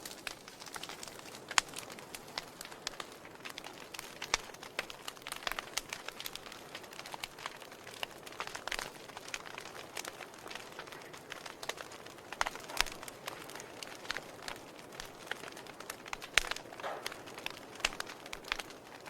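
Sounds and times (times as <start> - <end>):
soft fire hiss: 0.0 - 19.0
wood fire crackling and popping: 0.0 - 19.0.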